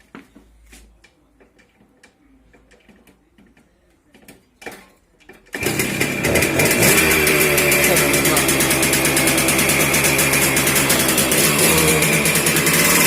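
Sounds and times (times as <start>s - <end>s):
engine starting and running: 5.5s - 13.0s.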